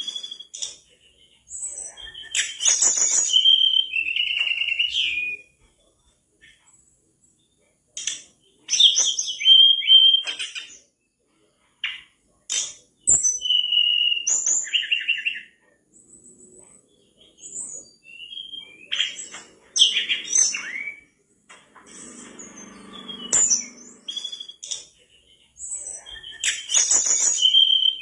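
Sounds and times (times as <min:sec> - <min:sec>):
bird singing whistled phrases: 0:00.0 - 0:00.9, 0:01.6 - 0:05.6, 0:08.7 - 0:10.7, 0:13.1 - 0:15.6, 0:17.3 - 0:21.2, 0:21.9 - 0:24.9, 0:25.7 - 0:28.0.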